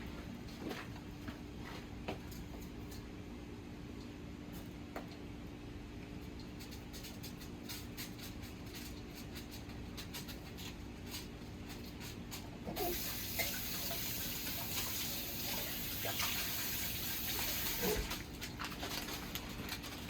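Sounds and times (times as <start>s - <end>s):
tap water running into sink: 12.8s - 18.2s.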